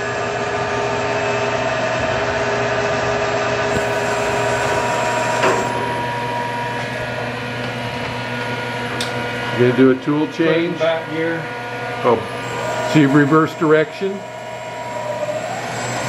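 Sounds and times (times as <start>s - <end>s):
milling machine whine: 0.0s - 16.0s.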